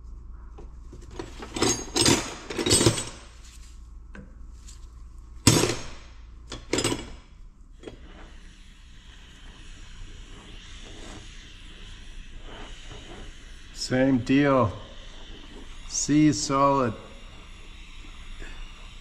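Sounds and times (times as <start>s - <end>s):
metal tools clanking and scraping: 1.0s - 3.5s, 5.5s - 7.2s.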